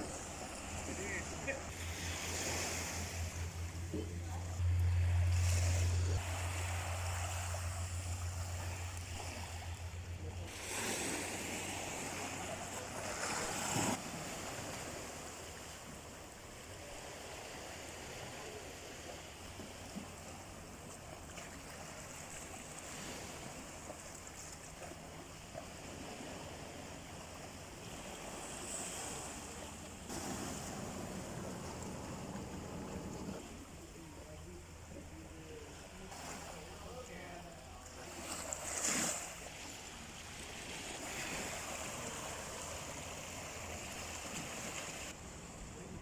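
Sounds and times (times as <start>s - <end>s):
low steady hum: 0.0s - 13.5s
sea waves washing on shore: 0.0s - 46.0s.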